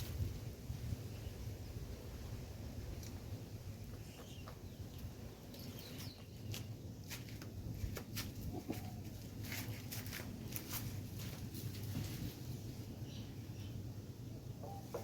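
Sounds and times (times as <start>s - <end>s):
chickens foraging clicks and rustles: 2.8s - 12.9s
faint chicken calls: 14.6s - 15.0s.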